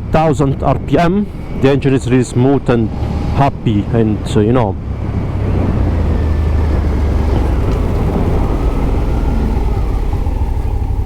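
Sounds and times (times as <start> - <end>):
wind rumble on microphone: 0.0 - 11.0
motorcycle engine running: 5.2 - 11.0.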